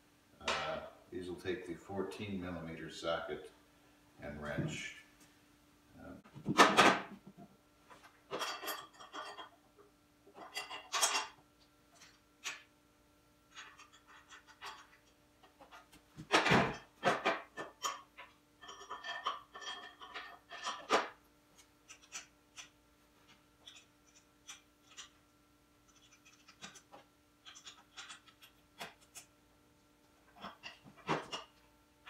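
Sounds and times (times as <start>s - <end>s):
metal tools clicking and clinking: 8.3s - 9.5s, 17.2s - 21.0s.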